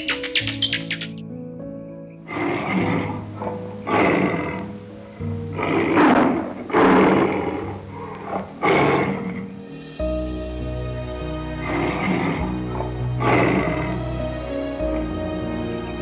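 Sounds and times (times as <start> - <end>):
background music with sustained tones: 0.0 - 16.0
animal calling in rasping bursts: 2.2 - 9.8.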